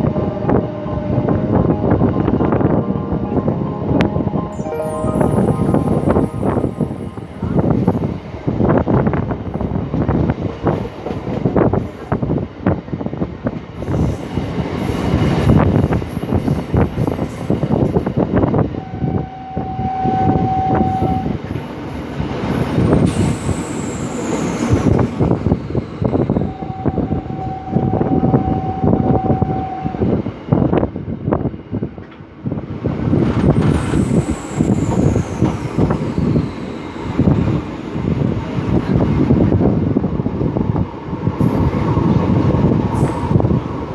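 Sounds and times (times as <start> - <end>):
long steady tone: 1.0 - 8.6
train wheels clattering on rails: 32.0 - 43.9.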